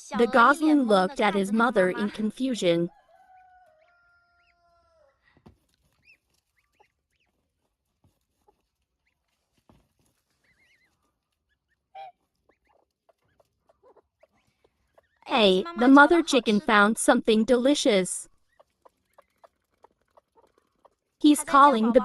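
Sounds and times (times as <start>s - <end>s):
goslings peeping: 6.0s - 7.5s, 8.4s - 9.4s, 10.1s - 16.2s, 18.4s - 21.9s
hen calling: 11.9s - 12.8s.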